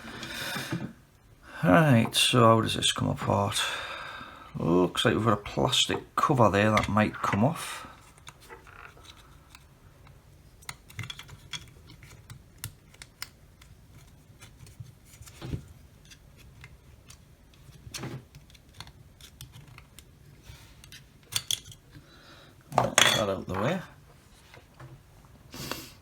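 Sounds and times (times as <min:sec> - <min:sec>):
clicks of plastic parts handled: 0:08.0 - 0:20.1, 0:20.8 - 0:22.0.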